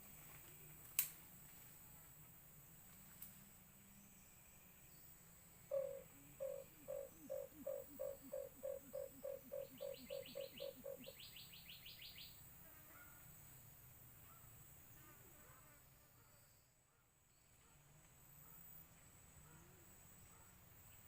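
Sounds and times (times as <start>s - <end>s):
dove hooting: 5.7s - 12.2s.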